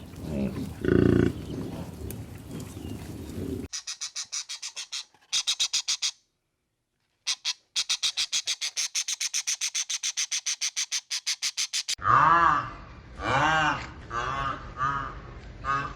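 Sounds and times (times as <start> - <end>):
animal chattering call: 3.7 - 6.2, 7.3 - 12.0.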